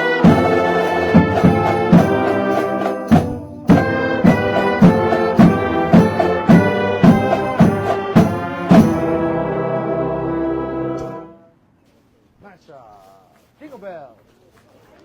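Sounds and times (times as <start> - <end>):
drum strikes: 0.0 - 9.5
marching band brass: 0.0 - 11.6.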